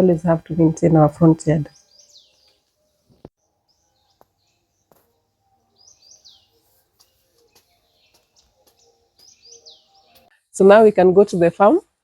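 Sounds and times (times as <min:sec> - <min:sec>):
bird chirps: 0:01.7 - 0:10.3.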